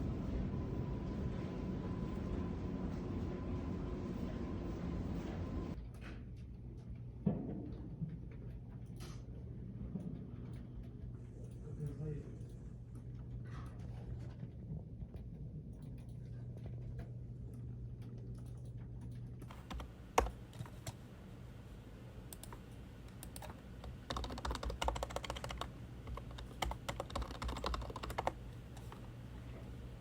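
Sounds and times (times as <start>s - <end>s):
steady low hum: 0.0s - 30.0s
computer keyboard typing: 18.1s - 21.1s, 22.3s - 29.8s.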